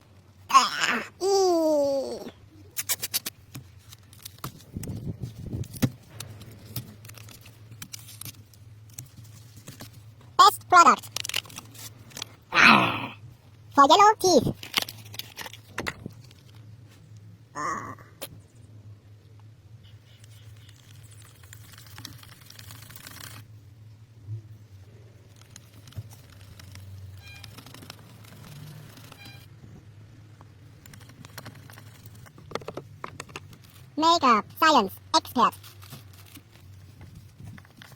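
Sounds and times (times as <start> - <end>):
dry scratching and crackling: 2.7 - 10.4, 11.0 - 12.4, 20.1 - 23.5, 24.9 - 29.5, 30.7 - 34.0, 35.4 - 37.9.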